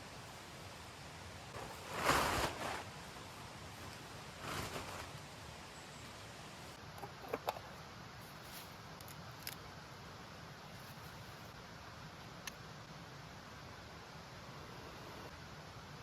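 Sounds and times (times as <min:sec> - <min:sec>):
rustling: 0:01.5 - 0:07.6, 0:08.2 - 0:09.6.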